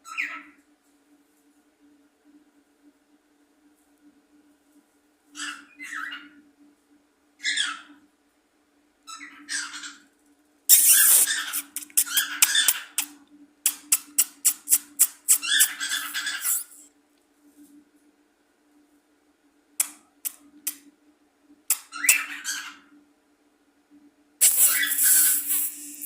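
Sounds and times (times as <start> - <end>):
bird calling: 13.8 - 16.8.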